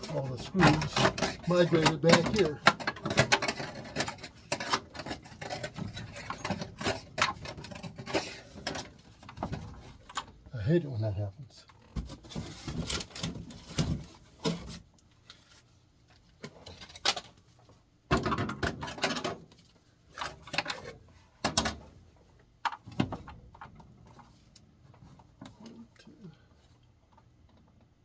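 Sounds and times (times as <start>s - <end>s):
metal parts clattering: 0.0s - 8.9s.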